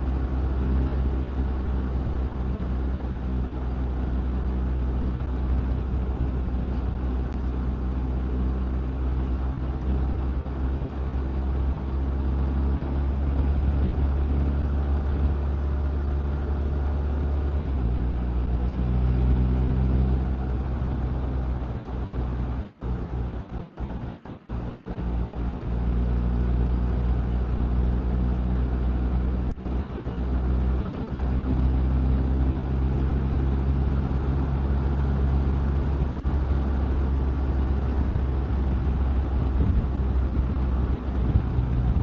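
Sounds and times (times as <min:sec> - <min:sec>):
motorcycle engine cruising: 0:00.0 - 0:42.0
wind noise: 0:35.4 - 0:42.0.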